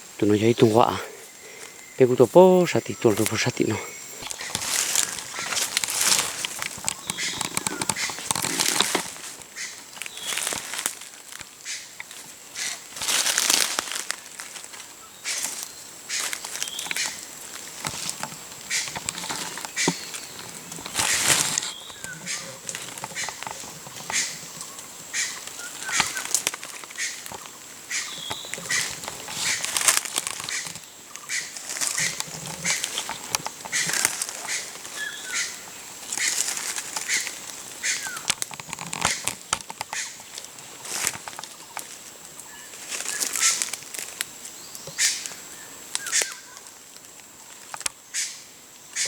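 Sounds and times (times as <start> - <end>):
rustling and crackling: 0.1 - 48.0
high bird chirps: 6.9 - 8.2.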